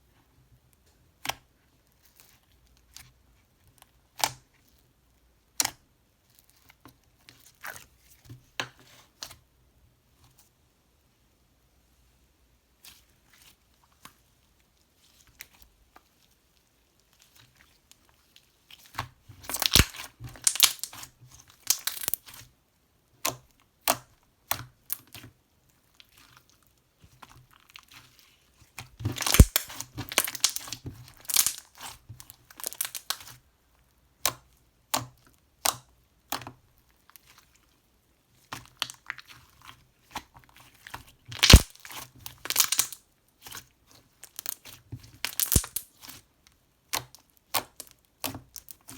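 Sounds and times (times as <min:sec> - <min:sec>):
crinkling and tearing material: 0:12.9 - 0:22.5, 0:25.7 - 0:33.4, 0:37.0 - 0:46.2.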